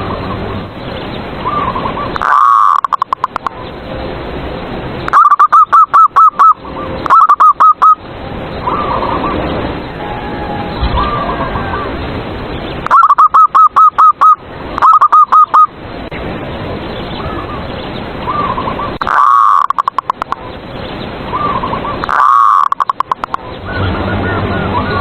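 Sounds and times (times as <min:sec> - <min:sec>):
doves cooing: 0:01.4 - 0:03.5, 0:08.6 - 0:12.2, 0:12.8 - 0:15.7, 0:18.3 - 0:20.4, 0:21.3 - 0:23.4.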